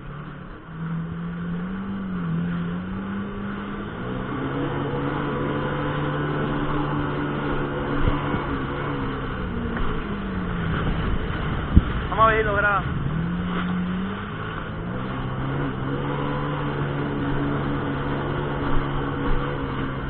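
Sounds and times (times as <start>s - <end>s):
jet ski engine running: 0.0s - 20.0s
water rushing: 0.0s - 20.0s.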